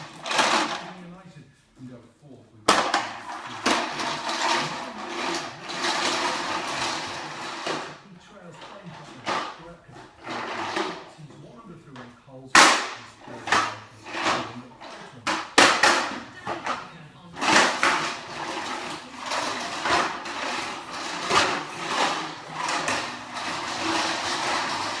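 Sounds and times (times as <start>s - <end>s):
vacuum cleaner running: 0.0s - 0.9s, 2.8s - 7.9s, 8.7s - 11.1s, 13.4s - 25.0s.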